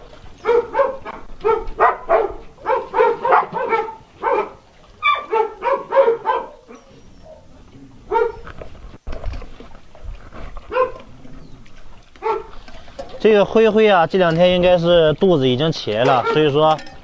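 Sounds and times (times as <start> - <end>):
dog barking rapidly: 0.4 - 7.4, 8.1 - 8.4, 10.7 - 11.0, 12.2 - 12.5, 16.1 - 16.5.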